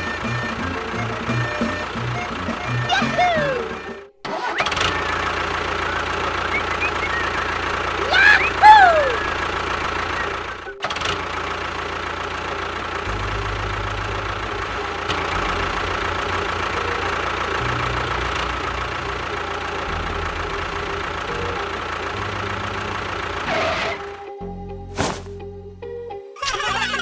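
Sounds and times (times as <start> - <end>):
tractor engine idling: 0.0 - 23.6.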